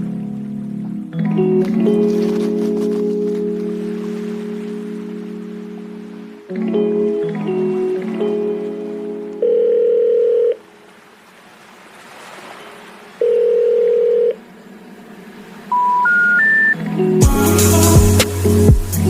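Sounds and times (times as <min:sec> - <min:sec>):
telephone ringback tone: 0:09.4 - 0:10.6, 0:13.2 - 0:14.4, 0:15.7 - 0:16.8
short rising telephone beeps: 0:15.7 - 0:16.8.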